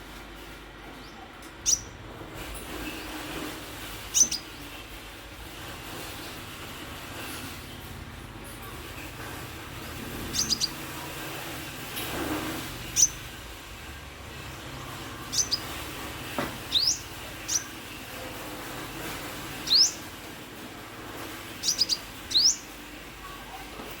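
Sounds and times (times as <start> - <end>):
sunbird high chirps: 1.0 - 2.0, 4.1 - 4.6, 10.3 - 10.9, 12.9 - 13.2, 15.0 - 15.9, 16.6 - 17.8, 19.6 - 20.1, 21.6 - 22.8.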